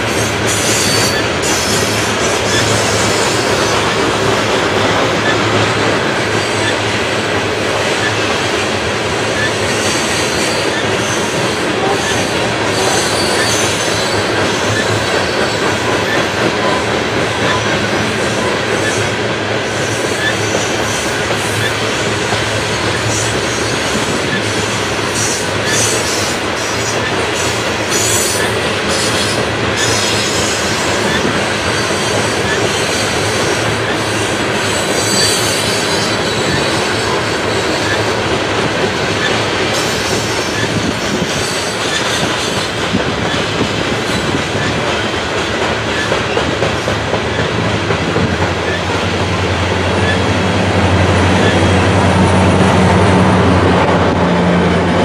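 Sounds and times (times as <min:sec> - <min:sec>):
diesel locomotive engine hum: 0:00.0 - 0:55.0
train wheels rumbling on rail: 0:00.0 - 0:55.0
high wheel squeal: 0:00.2 - 0:04.5, 0:09.3 - 0:21.9, 0:22.9 - 0:38.2, 0:39.1 - 0:44.9, 0:48.6 - 0:50.5, 0:51.2 - 0:52.6.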